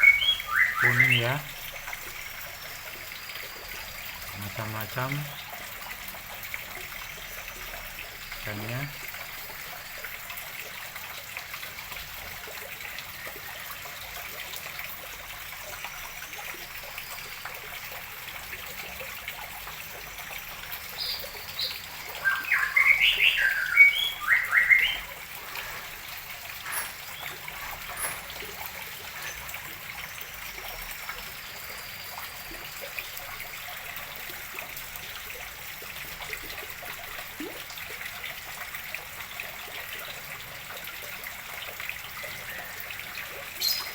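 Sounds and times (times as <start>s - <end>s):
faint bird whistles: 0.0s - 1.4s, 21.1s - 25.1s
small bird chirping: 0.0s - 1.5s, 20.9s - 25.6s, 26.6s - 32.6s, 43.6s - 43.9s
water trickling into pond: 0.0s - 43.9s.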